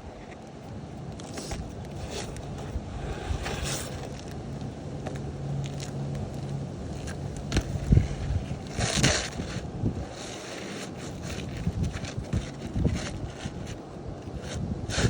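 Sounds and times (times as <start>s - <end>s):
low steady hum: 0.0s - 15.0s
wind on microphone: 1.2s - 15.0s
scraping on roof shingles: 7.0s - 15.0s.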